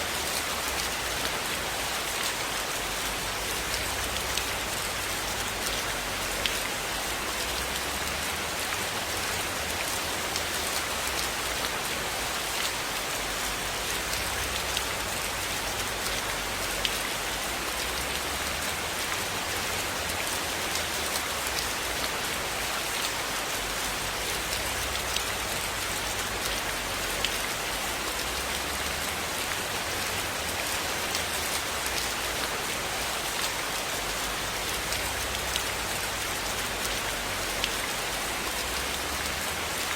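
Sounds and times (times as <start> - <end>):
steady rain falling: 0.0 - 39.9
raindrop ticks: 24.4 - 25.4.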